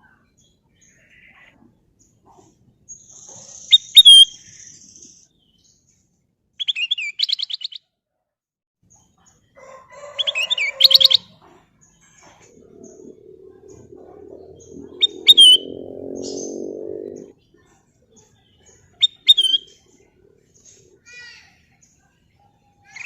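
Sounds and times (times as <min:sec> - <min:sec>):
bulbul whistling song: 0:03.0 - 0:05.2, 0:12.3 - 0:17.3, 0:19.0 - 0:20.8.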